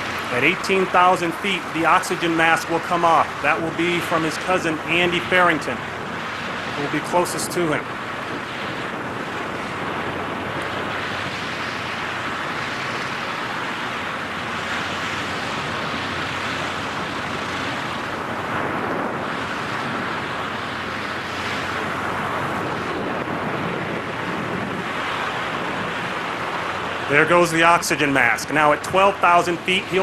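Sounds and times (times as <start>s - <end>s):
freefall wind buffeting microphone: 0.0s - 30.0s.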